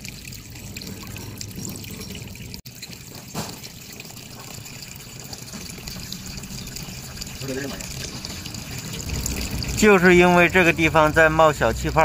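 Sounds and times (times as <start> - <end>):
water splash: 0.0 - 11.4
water trickling and bubbling: 0.0 - 12.0.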